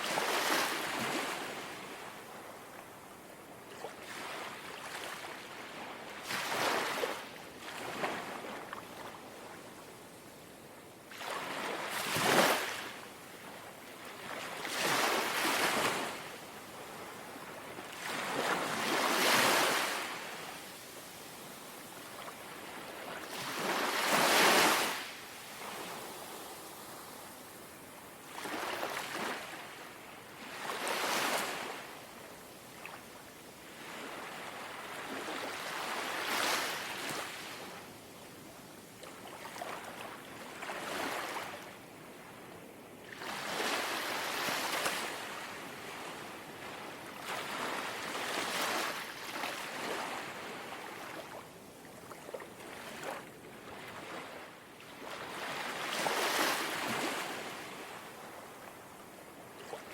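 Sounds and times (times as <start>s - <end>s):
small sea waves lapping: 3.7s - 9.5s, 11.1s - 20.6s, 21.5s - 31.9s, 39.0s - 42.4s, 43.0s - 59.9s.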